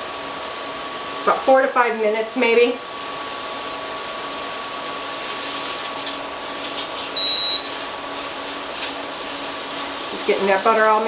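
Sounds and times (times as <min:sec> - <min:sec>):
steady hum: 0:00.0 - 0:11.0
short high electronic beep: 0:07.2 - 0:07.8.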